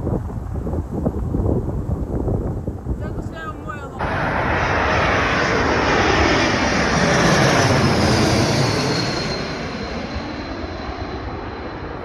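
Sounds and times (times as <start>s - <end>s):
high jet engine whine: 3.0s - 12.0s
jet airliner flying past: 3.0s - 12.0s.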